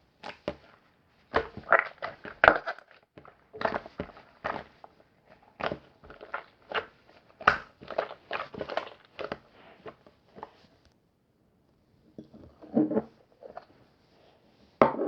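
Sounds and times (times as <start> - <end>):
person chewing crunchy food: 6.1 - 9.5.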